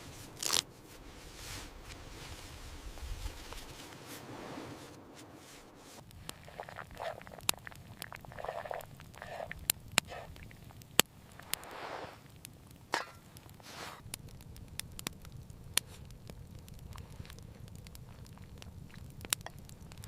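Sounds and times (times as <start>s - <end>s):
rustling and crunching: 0.0s - 7.8s, 10.1s - 14.6s, 15.2s - 20.0s
sharp cracks and crackles: 0.1s - 0.8s, 9.6s - 20.0s.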